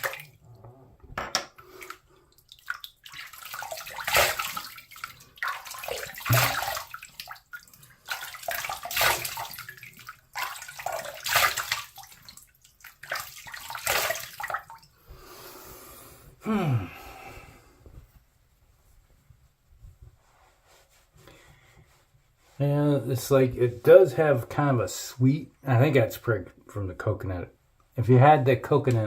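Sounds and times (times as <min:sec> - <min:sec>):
water splashing by hand: 0:00.0 - 0:00.4, 0:01.6 - 0:14.9
tap water running into sink: 0:02.6 - 0:07.5.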